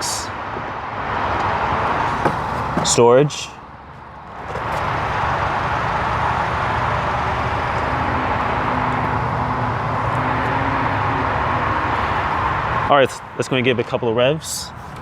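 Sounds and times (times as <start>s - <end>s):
car engine starting and running: 1.3s - 10.8s.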